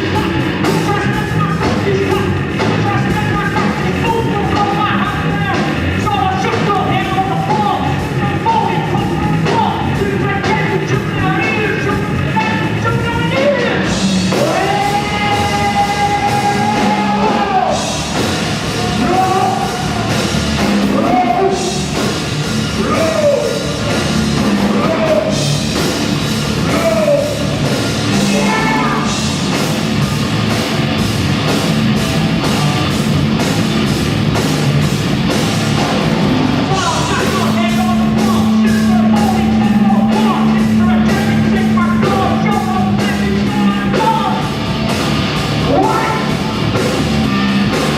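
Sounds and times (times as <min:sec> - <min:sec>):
rock band playing: 0:00.0 - 0:47.9
lead singer singing: 0:28.1 - 0:29.2, 0:36.8 - 0:44.5.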